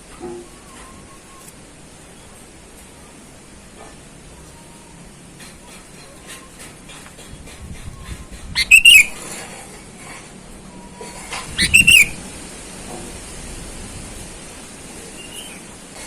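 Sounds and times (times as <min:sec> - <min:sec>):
bird whistled call notes: 0:08.6 - 0:09.2, 0:11.6 - 0:12.2, 0:15.2 - 0:15.7.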